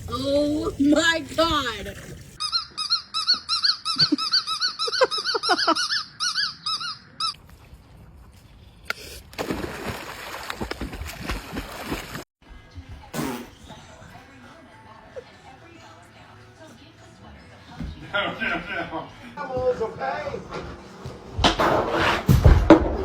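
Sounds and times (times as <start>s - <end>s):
high-pitched squeaks: 2.4s - 7.4s.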